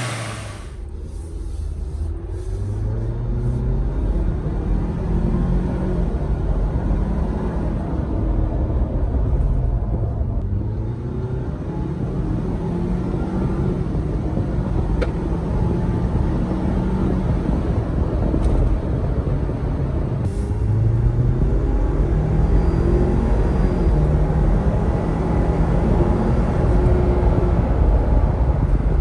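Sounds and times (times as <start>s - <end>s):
turbocharged car engine revving: 0.0s - 5.9s.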